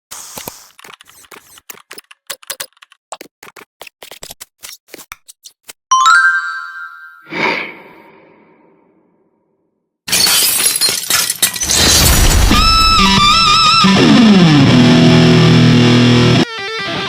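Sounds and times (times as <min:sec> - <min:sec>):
typing clicks: 0:00.7 - 0:03.6.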